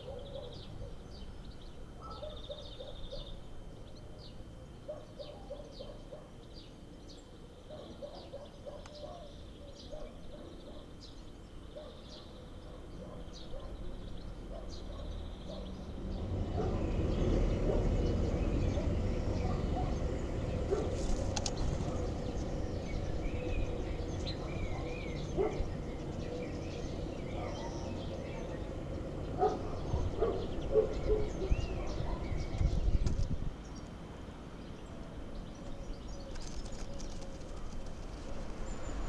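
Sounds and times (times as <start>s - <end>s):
low rustling rumble: 36.6s - 39.0s.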